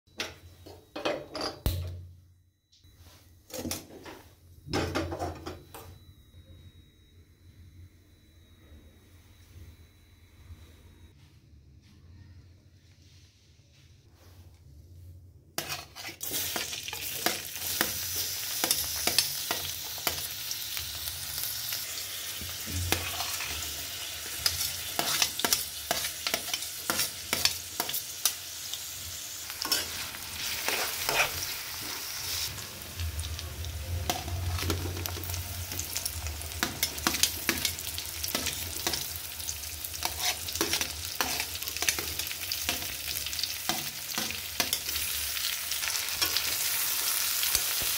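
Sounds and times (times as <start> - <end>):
metal spatula scraping pan: 15.6 - 20.2, 22.8 - 28.4, 29.6 - 32.2, 39.9 - 45.1
onions sizzling in oil: 15.6 - 47.9.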